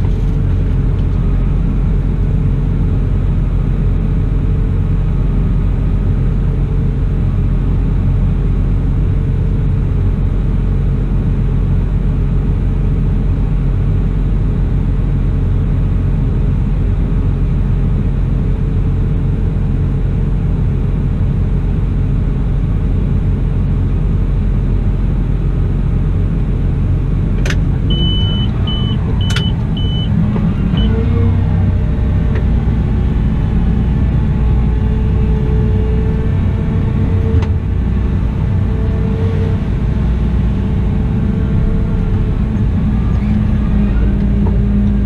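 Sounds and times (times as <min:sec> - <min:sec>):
diesel engine running: 0:00.0 - 0:45.0
high beeps: 0:27.9 - 0:31.0.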